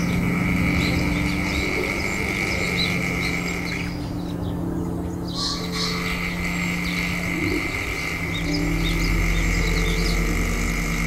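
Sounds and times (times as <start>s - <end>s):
ambient music drone: 0.0s - 11.0s
small birds chirping: 0.0s - 11.0s
high bird call: 5.3s - 10.8s.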